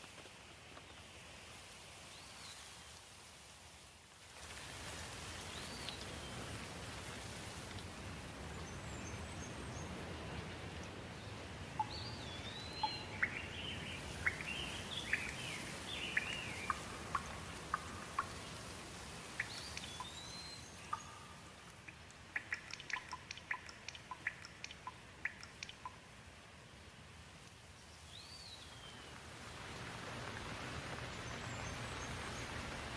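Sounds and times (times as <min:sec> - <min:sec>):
birds chirping and whistling: 0:11.8 - 0:17.3.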